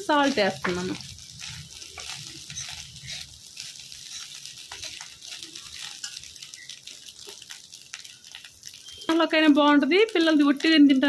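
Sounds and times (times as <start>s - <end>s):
fish roe sizzling in a pan: 0.0s - 11.0s
steel spoon scraping and clicking: 2.0s - 6.3s.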